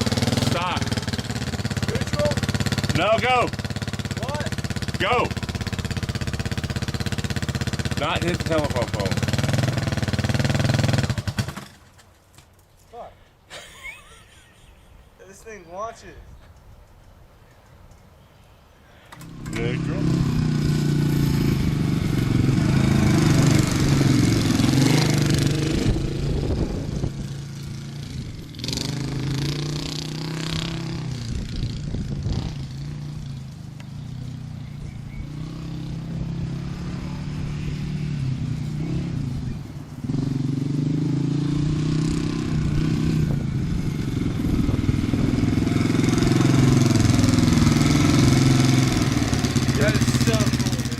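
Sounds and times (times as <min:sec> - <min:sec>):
dirt bike engine running: 0:00.0 - 0:11.8, 0:19.2 - 0:50.9.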